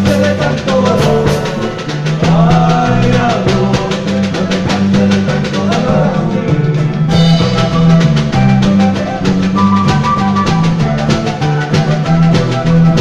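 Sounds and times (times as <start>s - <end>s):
folk band playing: 0.0s - 13.0s
steady drum beat: 0.0s - 13.0s.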